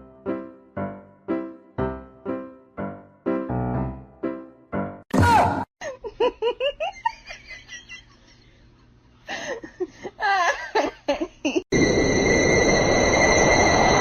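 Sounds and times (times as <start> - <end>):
person laughing: 5.8 - 8.7, 9.3 - 11.7.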